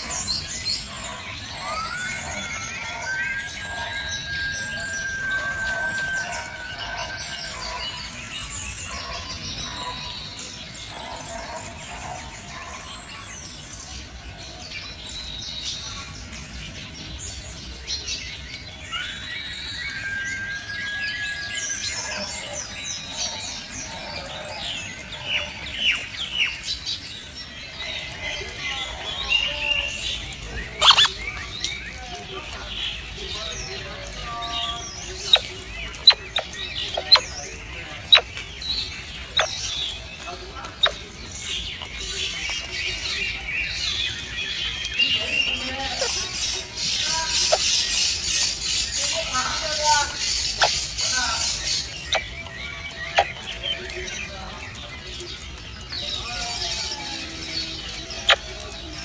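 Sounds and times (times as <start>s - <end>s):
birds chirping and twittering: 0.0s - 59.0s
long held bird whistle: 1.5s - 7.9s
sharp falling bird calls: 29.2s - 32.0s, 33.0s - 53.7s.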